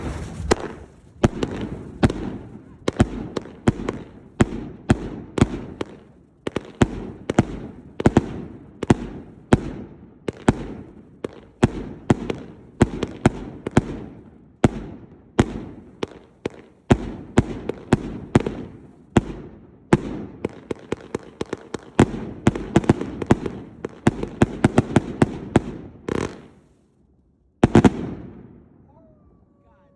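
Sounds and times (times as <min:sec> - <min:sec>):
fireworks salute reports: 0:28.8 - 0:29.9.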